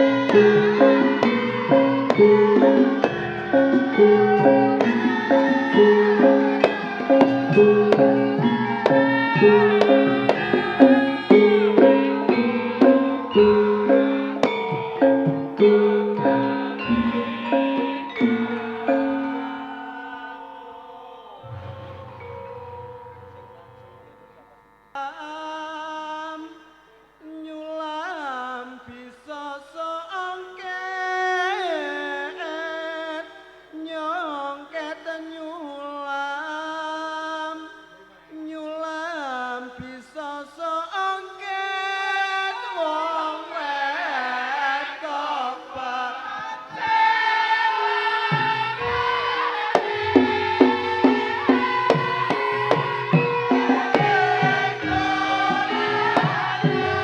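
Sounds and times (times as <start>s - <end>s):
rhythmic drumming: 0.0s - 20.5s, 46.8s - 57.0s
solo voice singing: 0.0s - 57.0s
low struck notes: 21.4s - 24.7s.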